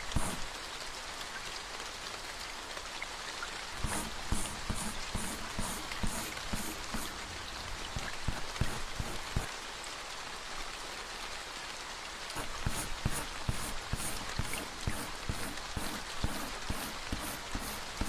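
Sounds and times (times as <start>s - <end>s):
soft strokes: 0.0s - 0.5s, 3.8s - 9.5s, 12.4s - 18.0s
steady rain: 0.0s - 18.0s.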